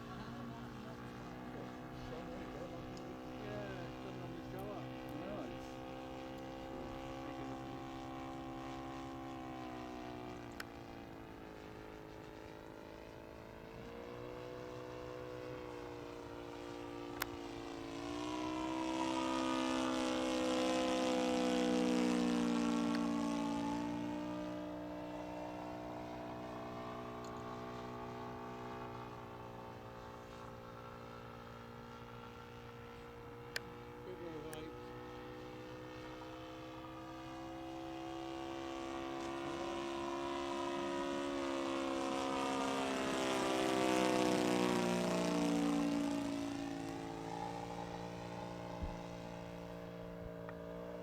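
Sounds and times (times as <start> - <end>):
model airplane engine running: 0.0 - 51.0.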